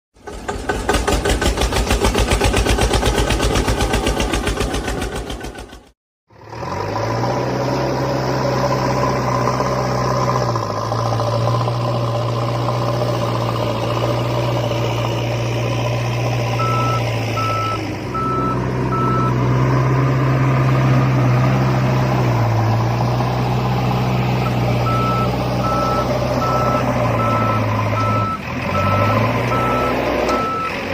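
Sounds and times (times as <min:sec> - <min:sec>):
reversing beep: 0:16.6 - 0:19.4, 0:24.4 - 0:30.9.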